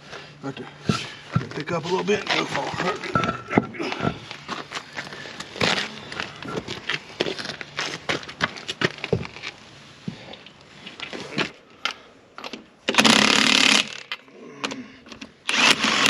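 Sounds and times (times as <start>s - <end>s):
metal clanks of tractor wheel: 0.8s - 4.4s
impact wrench hammering: 0.9s - 1.6s, 2.6s - 4.2s.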